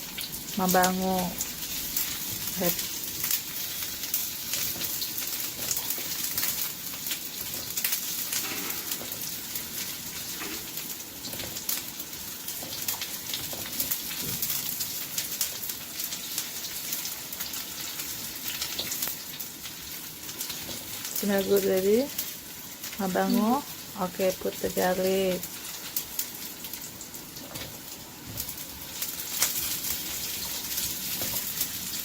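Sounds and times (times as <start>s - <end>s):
ginger sizzling in hot oil: 0.0s - 32.0s.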